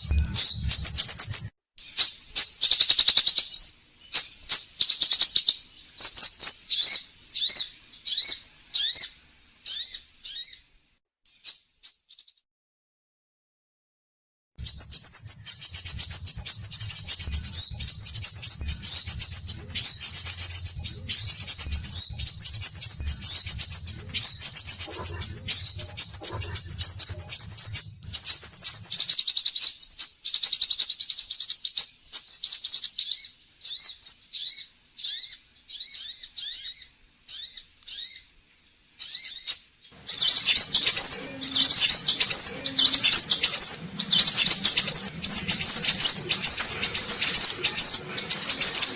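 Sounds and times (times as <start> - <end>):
faint low hum: 0.0 - 1.5, 14.6 - 29.2, 40.0 - 48.9
bird high-pitched trills: 0.0 - 9.0, 14.6 - 31.0, 39.0 - 48.9.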